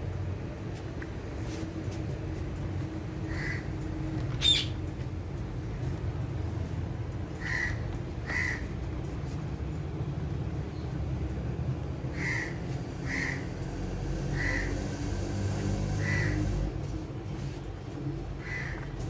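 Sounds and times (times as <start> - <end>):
parakeet calls: 4.4 - 4.8.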